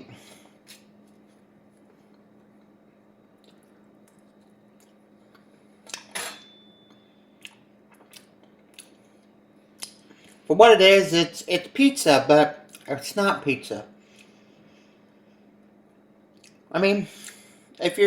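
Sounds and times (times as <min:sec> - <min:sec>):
steady low hum: 0:00.0 - 0:18.0
tableware clatter: 0:06.0 - 0:06.8.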